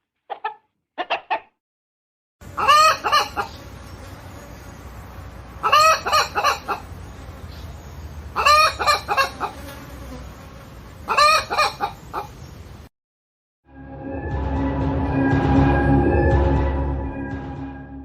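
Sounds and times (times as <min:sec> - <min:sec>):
hen calling: 0:02.6 - 0:03.7, 0:05.6 - 0:06.9, 0:08.4 - 0:09.6, 0:11.1 - 0:12.4.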